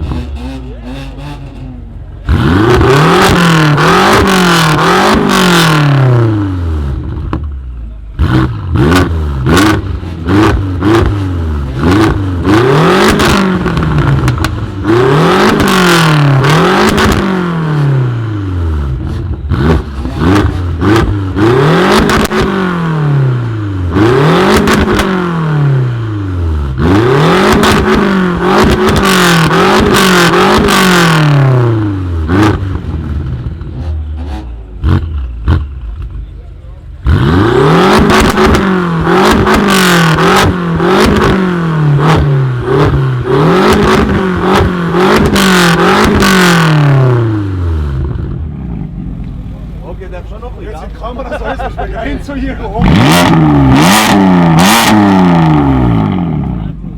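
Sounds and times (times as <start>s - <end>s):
car engine revving: 0.0s - 56.9s
exhaust pops and crackles: 8.9s - 17.3s, 32.4s - 36.4s, 48.1s - 56.8s.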